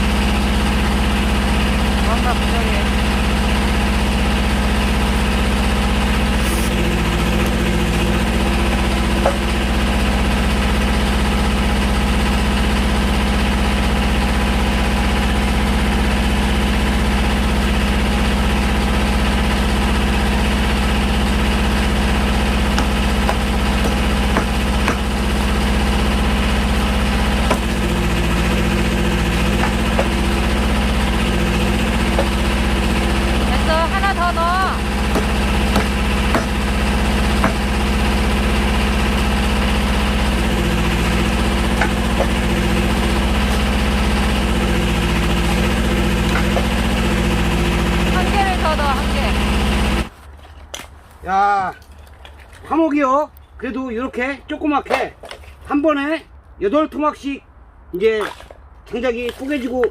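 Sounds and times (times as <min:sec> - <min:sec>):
tractor engine running: 0:00.0 - 0:56.5
wood splitting cracks: 0:22.5 - 0:26.0, 0:26.9 - 0:33.2, 0:34.9 - 0:37.8, 0:41.1 - 0:43.8, 0:44.6 - 0:47.3, 0:50.2 - 0:52.7.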